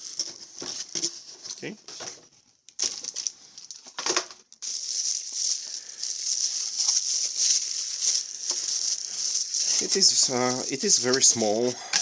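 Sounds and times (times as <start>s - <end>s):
packaging rustling and crinkling: 2.8s - 11.7s.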